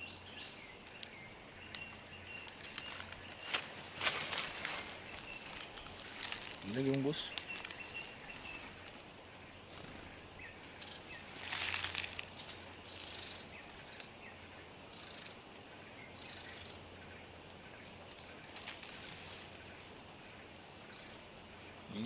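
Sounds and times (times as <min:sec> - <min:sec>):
forest insects droning: 0:00.0 - 0:22.0
rustling: 0:02.4 - 0:09.0, 0:10.8 - 0:14.1, 0:18.4 - 0:19.7.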